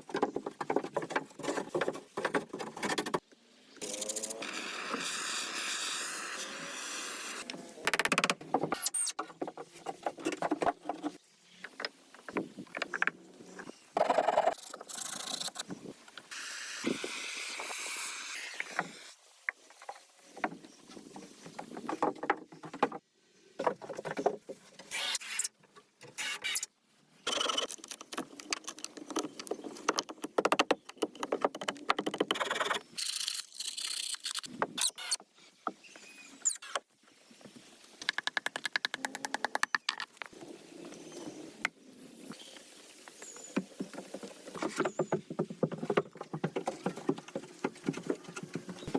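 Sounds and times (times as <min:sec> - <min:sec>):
sharp knocks and clicks: 0:27.9 - 0:32.6.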